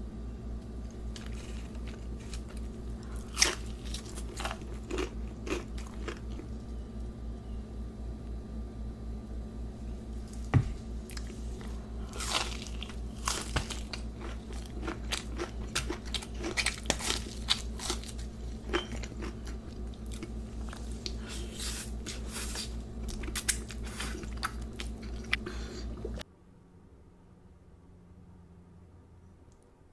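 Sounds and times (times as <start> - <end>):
steady low hum: 0.0 - 29.9
crunchy bites and chewing: 0.6 - 7.1, 10.1 - 26.1.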